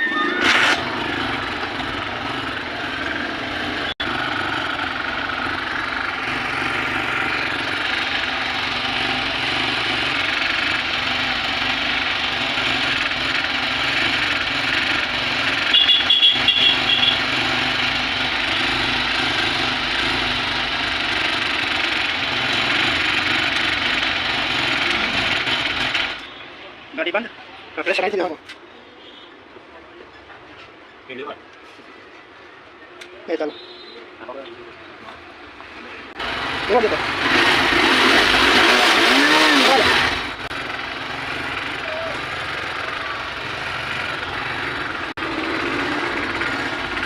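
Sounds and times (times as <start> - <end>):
high beeps: 0.0 - 0.6
motorcycle engine running: 0.7 - 26.3, 35.6 - 47.0.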